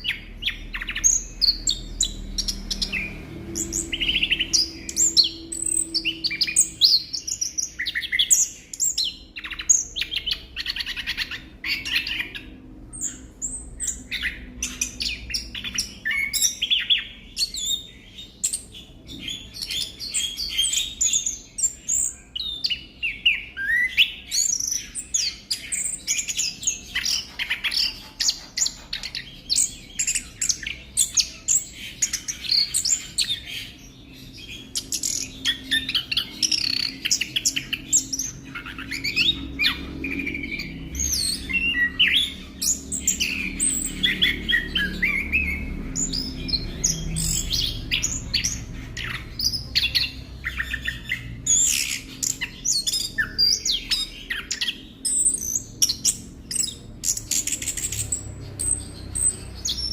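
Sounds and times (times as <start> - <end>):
bird singing chirps and trills: 0.0 - 59.9.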